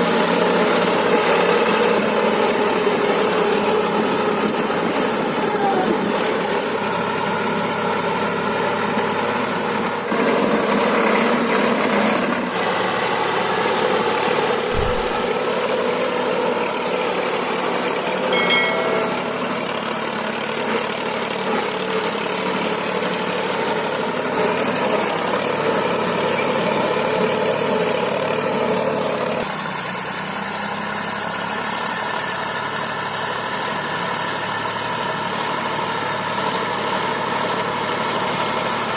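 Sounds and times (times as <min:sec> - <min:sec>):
tractor diesel engine running: 0:00.0 - 0:38.9
short low thump: 0:14.7 - 0:15.3
brief high tone: 0:18.3 - 0:19.8.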